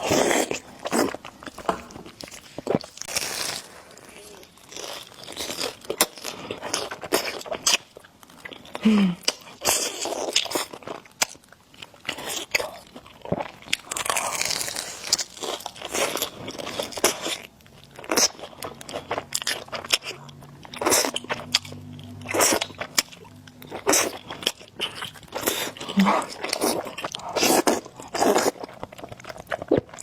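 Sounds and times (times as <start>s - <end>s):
person chewing noodles: 0.0s - 30.0s.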